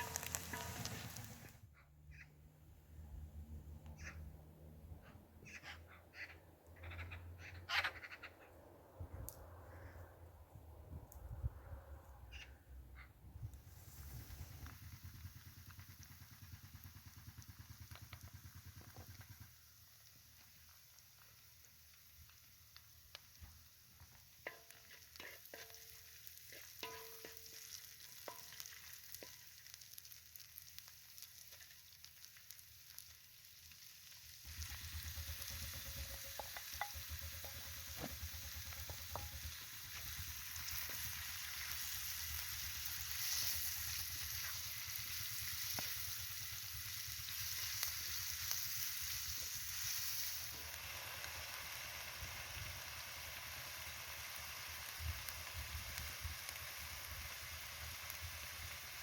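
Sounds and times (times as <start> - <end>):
utensil scraping metal pan: 0.0 - 1.5, 24.4 - 28.6
food sizzling in a pan: 0.0 - 1.6, 13.7 - 59.0.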